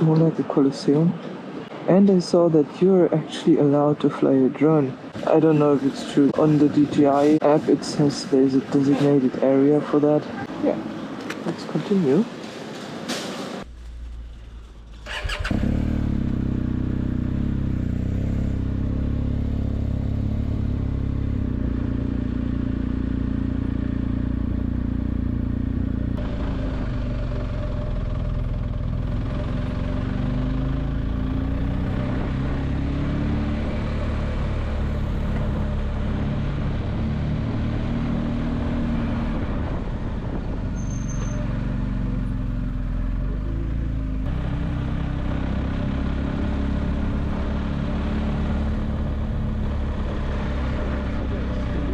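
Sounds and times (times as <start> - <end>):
motorcycle engine running: 14.0 - 38.7, 41.4 - 51.9.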